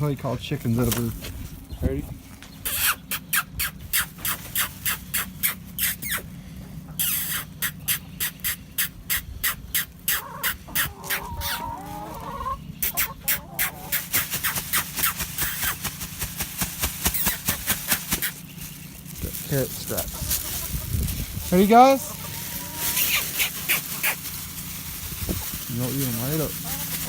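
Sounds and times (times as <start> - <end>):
mouth clicks: 2.6 - 6.3, 7.0 - 11.6
wavering warbling calls: 2.6 - 6.3, 7.0 - 15.8, 17.1 - 18.6, 20.1 - 27.0.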